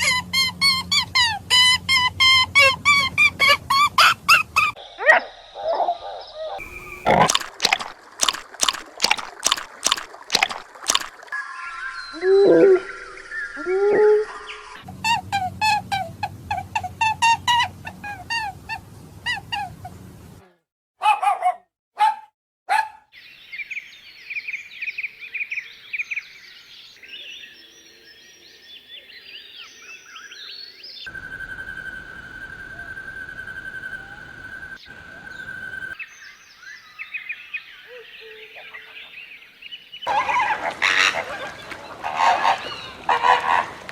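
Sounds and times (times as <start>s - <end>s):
birds chirping: 4.7s - 14.8s
quick repeated animal calls: 6.6s - 11.2s
rapid sharp animal calls: 6.6s - 11.2s.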